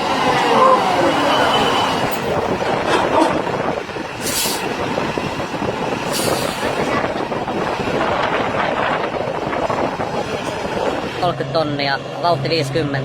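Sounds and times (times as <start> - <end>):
heavy truck engine and road noise: 0.0 - 13.0
short air hisses: 4.2 - 4.6.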